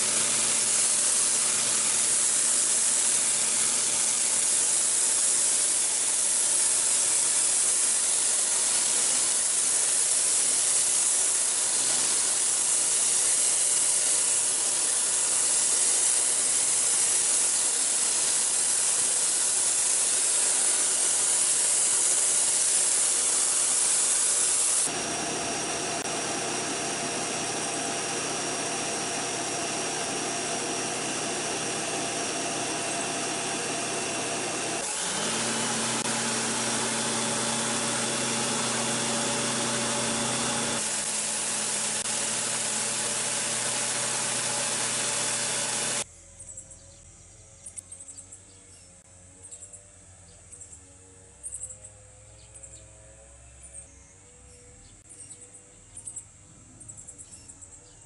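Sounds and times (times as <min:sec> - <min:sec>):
pressure washer spraying concrete: 0:00.0 - 0:46.1
washer motor humming: 0:00.0 - 0:46.1.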